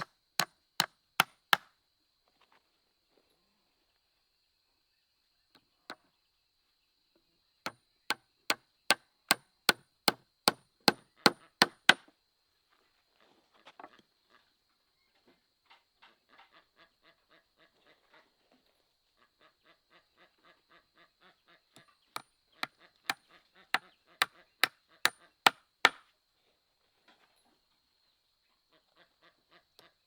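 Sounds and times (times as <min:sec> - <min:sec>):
sharp chopping strikes: 0:10.9 - 0:12.0.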